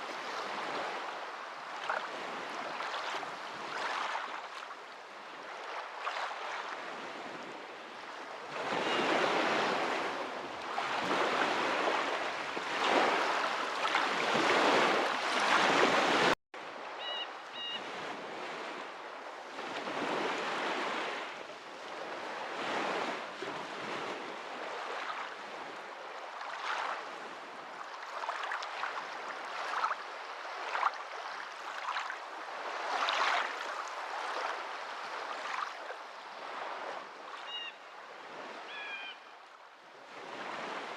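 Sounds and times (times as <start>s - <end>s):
water rushing in surges: 0.0s - 6.8s, 8.4s - 16.4s, 26.2s - 37.7s.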